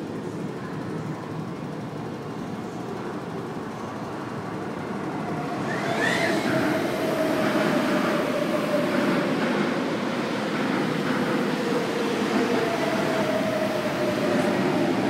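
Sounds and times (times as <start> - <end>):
train rushing past: 3.5 - 15.0.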